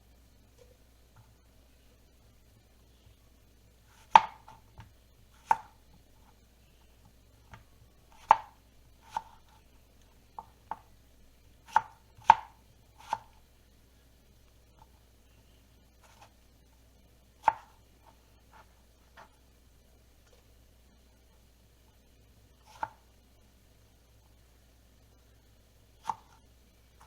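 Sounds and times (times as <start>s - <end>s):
knife chopping on cutting board: 3.9s - 5.8s, 7.5s - 9.4s, 11.6s - 13.3s, 17.4s - 19.3s, 26.0s - 26.4s.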